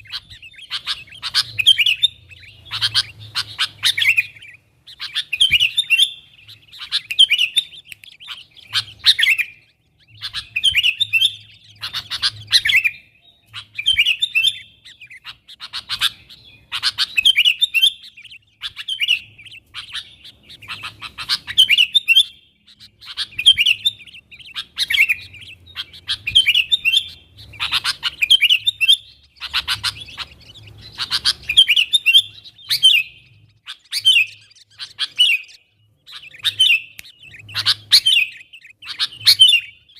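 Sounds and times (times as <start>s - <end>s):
bulbul calling: 0.0s - 39.9s.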